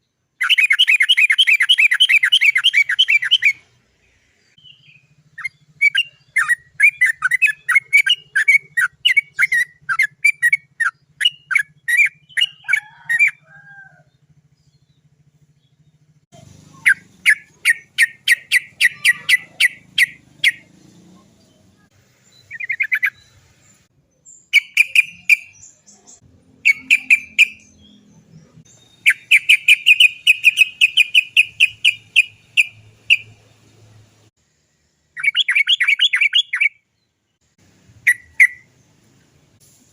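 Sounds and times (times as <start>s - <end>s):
bird calling in sharp notes: 0.4s - 3.7s, 4.6s - 14.0s, 16.4s - 20.7s, 24.5s - 25.9s, 26.6s - 28.2s, 28.8s - 33.4s, 35.2s - 36.8s, 38.0s - 38.7s.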